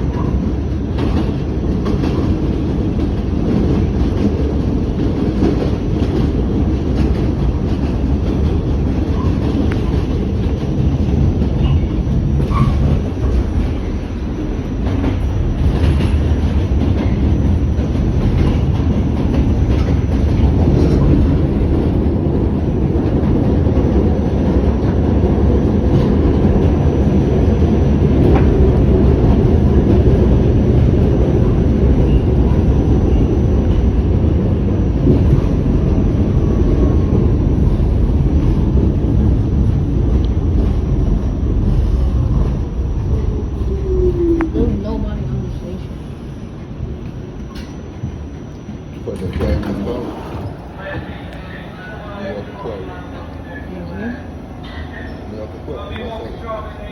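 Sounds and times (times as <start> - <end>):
rail joint clicks: 0.0 - 45.9, 46.6 - 51.6, 54.6 - 56.6
train wheels rumbling on rail: 0.0 - 56.9.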